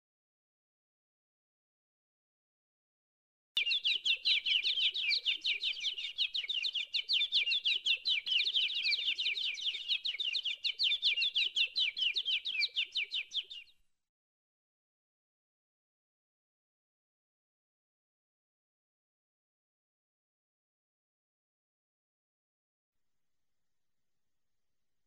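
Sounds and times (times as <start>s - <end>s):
small bird chirping rapidly: 3.6s - 13.7s.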